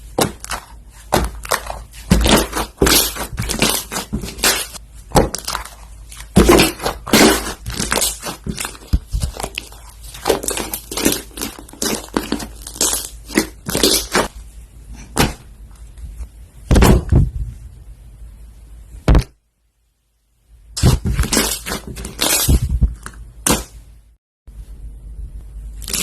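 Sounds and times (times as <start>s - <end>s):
hands squishing slime: 0.0s - 14.3s.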